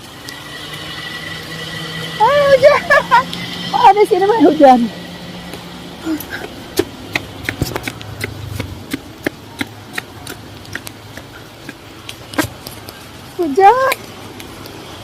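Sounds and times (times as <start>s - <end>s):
steady rain hiss: 0.0s - 2.0s, 10.5s - 15.0s
raindrops ticking on hard surface: 9.2s - 15.0s.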